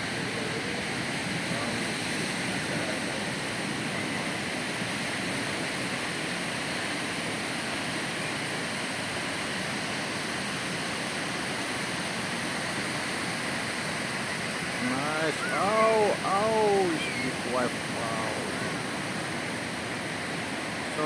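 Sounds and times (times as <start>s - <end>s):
ocean surf breaking: 0.0s - 21.0s.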